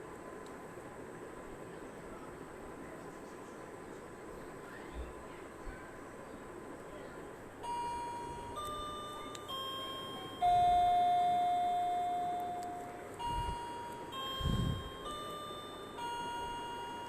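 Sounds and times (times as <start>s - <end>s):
low background hiss: 0.0s - 17.0s
steady electronic tones: 7.6s - 17.0s.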